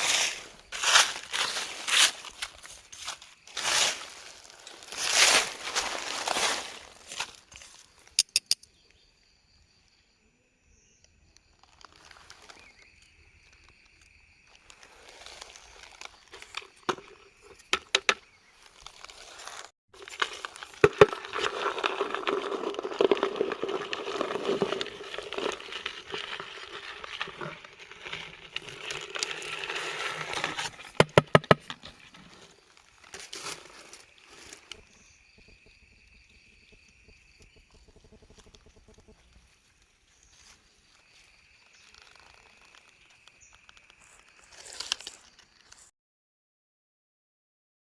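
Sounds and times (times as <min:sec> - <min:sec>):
rustling handling noise: 0:00.0 - 0:07.9
sharp clicks and taps: 0:08.2 - 0:08.7.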